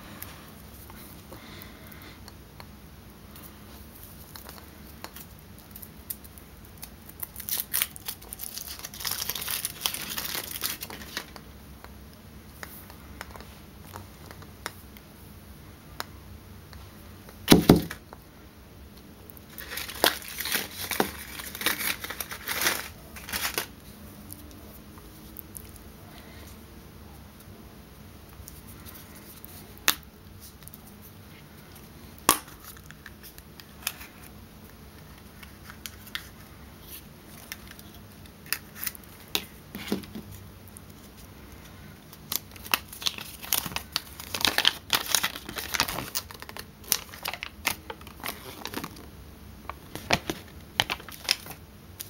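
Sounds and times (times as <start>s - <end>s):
foil wrapper tearing and crinkling: 5.2s - 11.3s, 19.5s - 23.7s, 37.4s - 39.5s, 42.1s - 49.0s, 49.8s - 51.6s.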